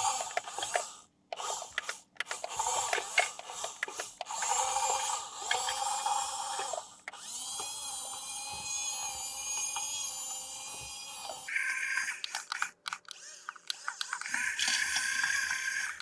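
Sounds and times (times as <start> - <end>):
rc toy motor whirring: 0.0 - 16.0.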